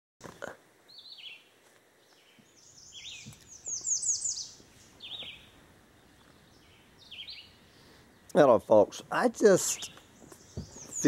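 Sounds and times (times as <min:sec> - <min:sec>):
songbirds singing: 0:00.8 - 0:11.0
soft knocks: 0:10.5 - 0:10.9.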